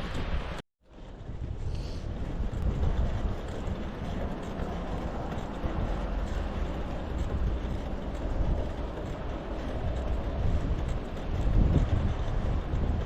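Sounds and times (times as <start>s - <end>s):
bicycle riding noise: 0.0s - 13.0s
wind buffeting microphone: 0.0s - 13.0s.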